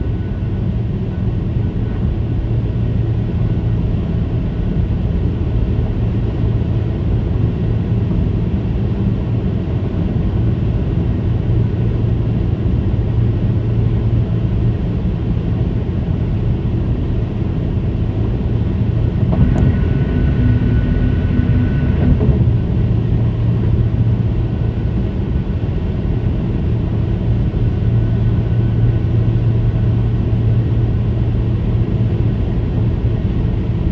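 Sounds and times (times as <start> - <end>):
road rumble: 0.0 - 33.9
car tyres humming on concrete: 8.9 - 33.8
higher tone: 18.6 - 25.2.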